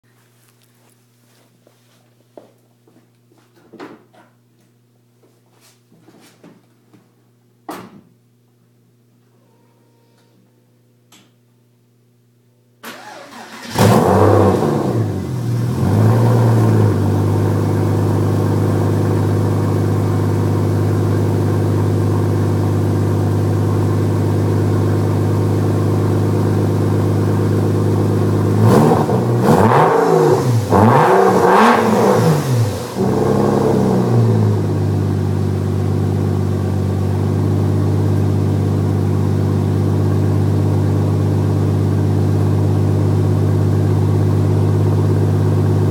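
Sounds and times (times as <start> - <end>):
car engine starting: 12.8 - 45.9
engine revving: 13.1 - 17.3, 28.4 - 34.8
car engine idling: 15.0 - 45.9.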